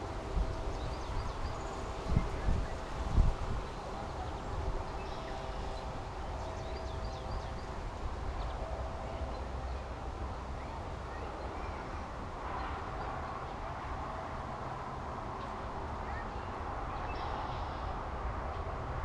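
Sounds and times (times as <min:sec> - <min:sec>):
small birds twittering: 0:00.1 - 0:09.9, 0:15.4 - 0:18.0.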